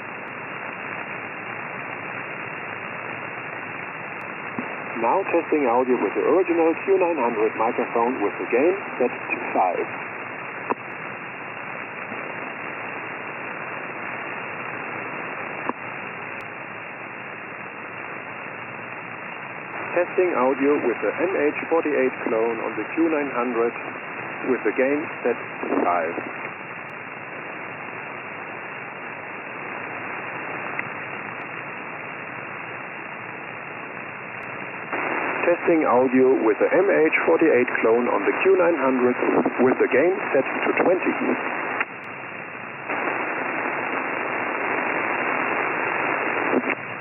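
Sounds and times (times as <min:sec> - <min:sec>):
radio static hiss: 0:00.0 - 0:47.0
faint tick: 0:10.6 - 0:10.9, 0:30.7 - 0:31.7.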